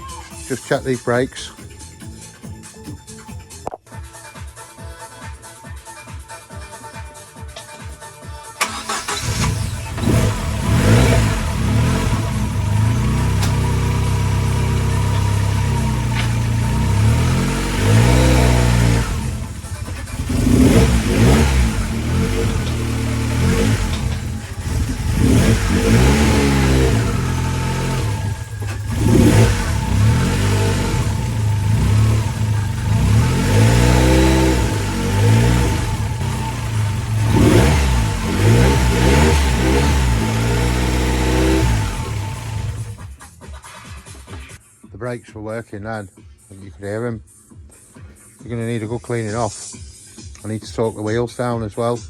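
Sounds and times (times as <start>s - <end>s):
car engine starting and idling: 8.4s - 44.4s.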